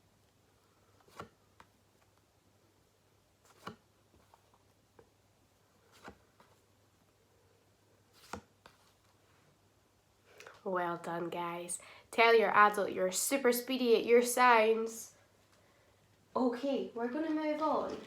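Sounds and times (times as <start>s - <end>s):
paper flashcards flicking: 1.0s - 1.7s, 3.5s - 3.8s.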